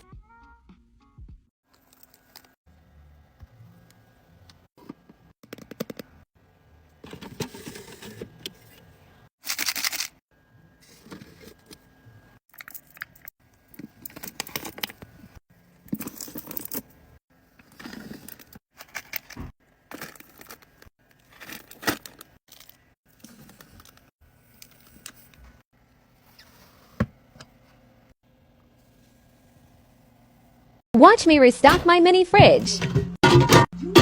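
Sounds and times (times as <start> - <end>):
packaging crinkling: 9.4 - 10.2.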